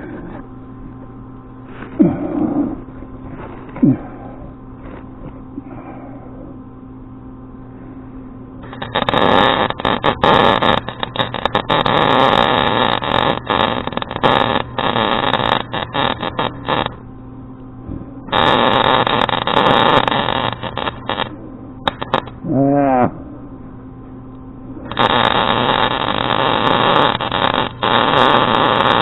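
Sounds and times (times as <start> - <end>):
low hum: 0.0 - 29.0
welding arc crackling: 8.6 - 17.0, 18.3 - 22.5, 24.8 - 29.0.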